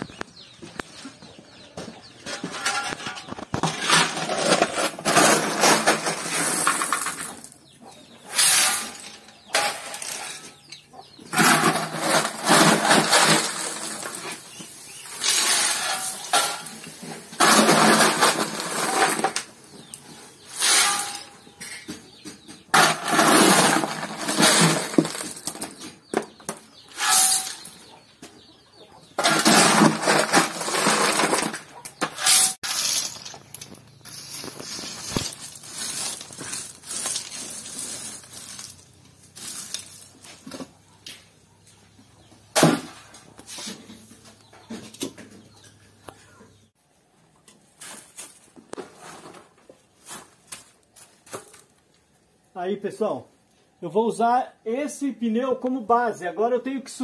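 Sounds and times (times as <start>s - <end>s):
brick pieces clattering onto rubble: 2.4s - 7.5s, 11.4s - 14.4s, 22.7s - 25.8s, 29.2s - 40.1s.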